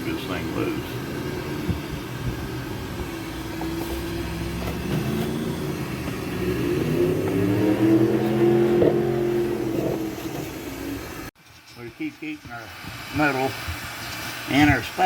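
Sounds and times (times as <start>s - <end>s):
airboat engine passing: 0.2s - 11.3s.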